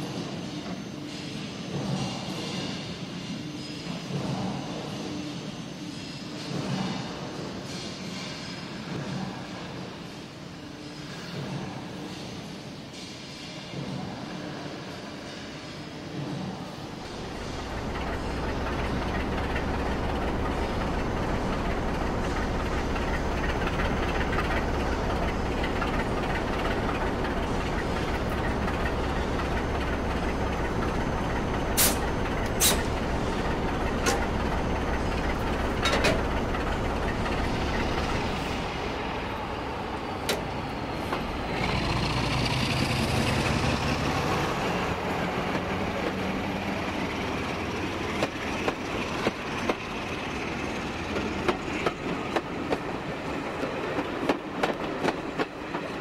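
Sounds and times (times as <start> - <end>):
climbing whine: 17.0 - 41.5
diesel engine sound from loudspeaker: 41.4 - 47.5.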